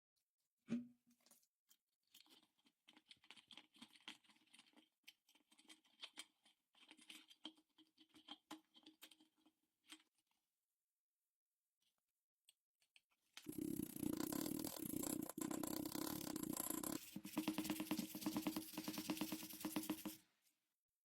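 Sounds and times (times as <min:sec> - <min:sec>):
scratching and scraping strokes: 0:13.5 - 0:20.2.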